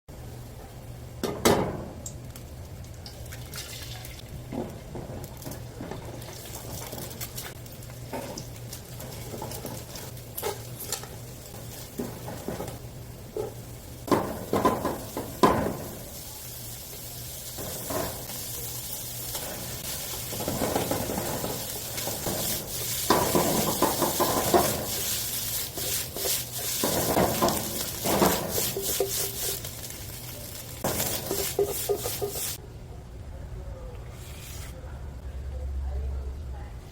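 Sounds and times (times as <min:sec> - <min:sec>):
rice sizzling in a pan: 0:06.2 - 0:32.6
utensil scraping and knocking pan: 0:20.2 - 0:29.7, 0:30.8 - 0:32.6.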